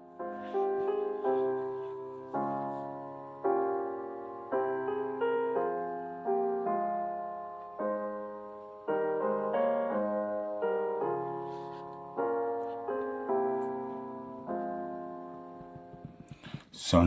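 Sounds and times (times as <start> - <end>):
gentle piano chords: 0.0 - 16.4.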